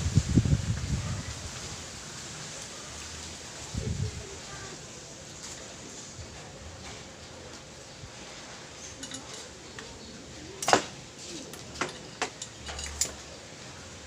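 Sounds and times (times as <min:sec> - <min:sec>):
metal tools clinking: 0:08.8 - 0:10.0, 0:10.6 - 0:13.4.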